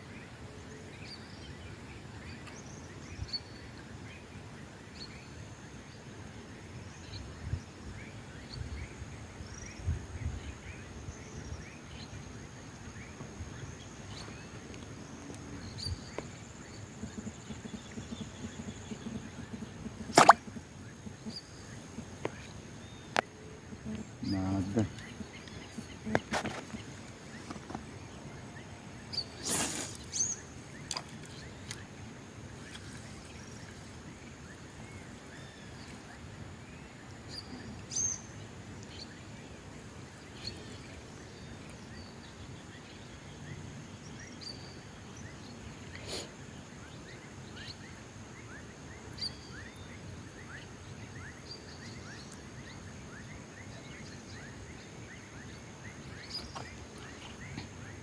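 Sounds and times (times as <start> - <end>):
background hiss: 0.0 - 58.0
bird calls and chirps: 12.9 - 32.0, 46.9 - 58.0.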